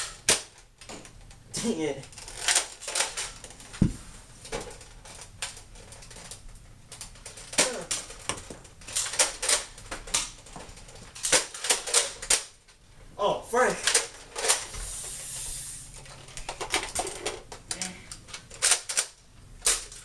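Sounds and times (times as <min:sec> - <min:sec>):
heavy thump: 0:03.8 - 0:04.2.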